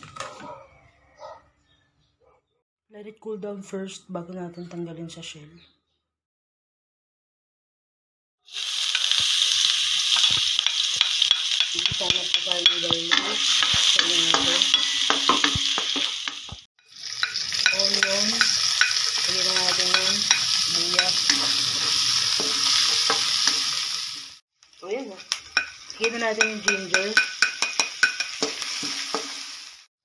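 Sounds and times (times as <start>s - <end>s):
garlic sizzling in hot oil: 8.5s - 29.9s
spatula scraping and tapping pan: 10.1s - 23.8s, 25.2s - 29.4s.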